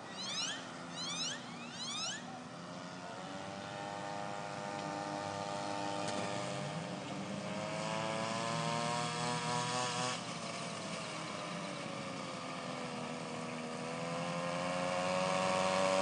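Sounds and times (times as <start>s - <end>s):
small engine revving: 0.0s - 16.0s.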